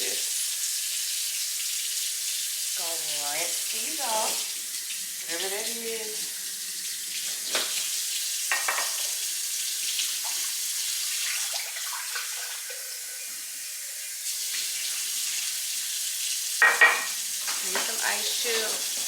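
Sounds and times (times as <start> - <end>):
tap running water into sink: 0.0 - 19.0.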